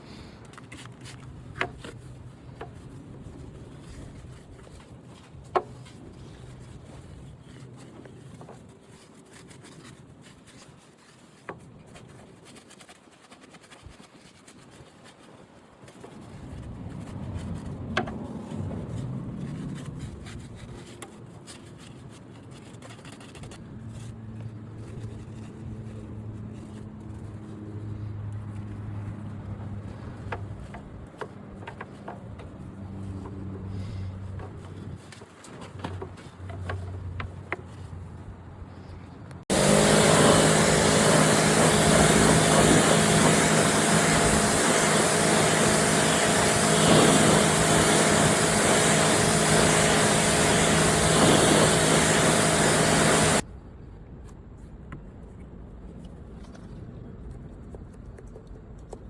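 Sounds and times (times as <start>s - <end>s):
pressure washer spraying: 39.5s - 53.4s.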